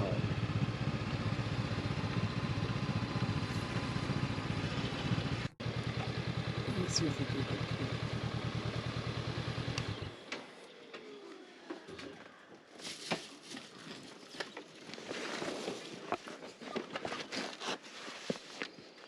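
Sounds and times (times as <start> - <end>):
motorcycle engine idling: 0.0 - 10.3.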